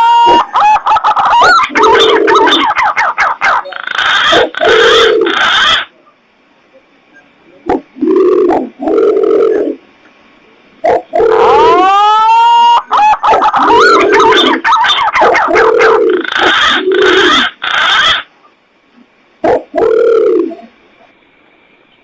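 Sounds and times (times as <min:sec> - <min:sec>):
hooting coos: 0:00.0 - 0:05.9, 0:07.1 - 0:09.8, 0:10.8 - 0:18.3, 0:19.4 - 0:20.8.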